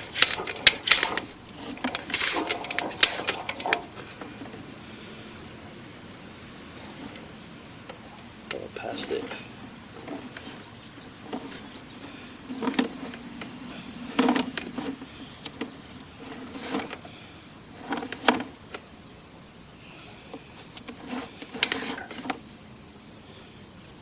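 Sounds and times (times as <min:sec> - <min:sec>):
push cable rattling in drain pipe: 0:00.0 - 0:04.6, 0:07.9 - 0:17.1, 0:17.7 - 0:18.8, 0:20.3 - 0:22.4.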